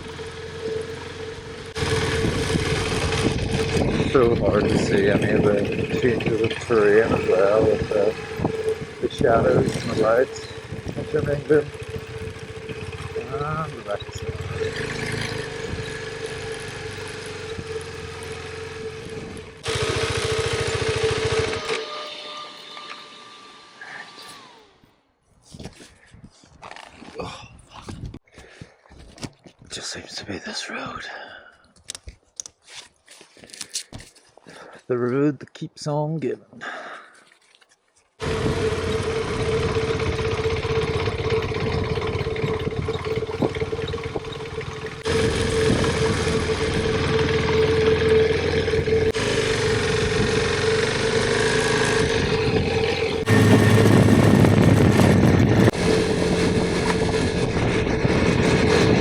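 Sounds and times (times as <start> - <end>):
motorcycle engine running: 0.0 - 21.8, 38.2 - 59.0.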